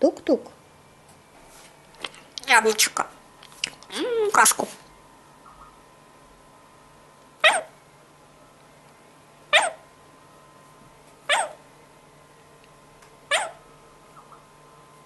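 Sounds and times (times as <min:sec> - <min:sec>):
parrot calling sharply: 0:09.5 - 0:09.8, 0:11.3 - 0:11.6, 0:13.3 - 0:13.6.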